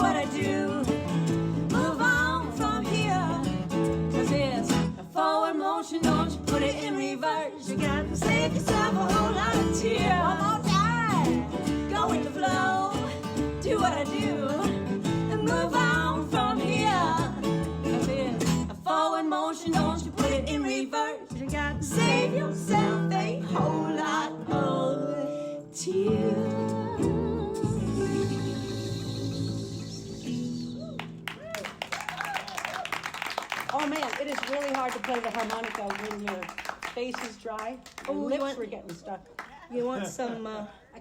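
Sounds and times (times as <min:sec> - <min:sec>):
strummed acoustic guitar: 0:00.0 - 0:05.1, 0:06.0 - 0:18.9, 0:19.6 - 0:20.8, 0:21.4 - 0:31.4.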